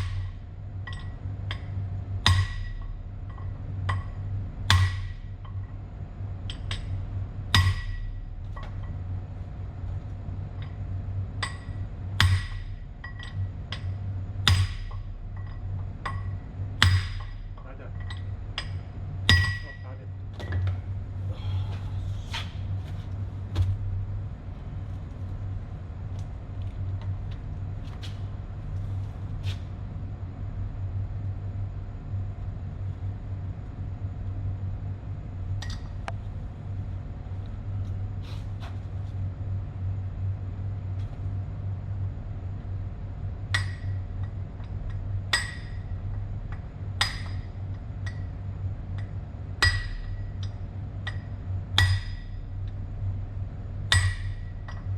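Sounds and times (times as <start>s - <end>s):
steady low hum: 0.0s - 54.9s
sharp metal taps: 45.3s - 45.8s, 47.0s - 47.4s, 49.0s - 52.3s, 53.9s - 54.8s.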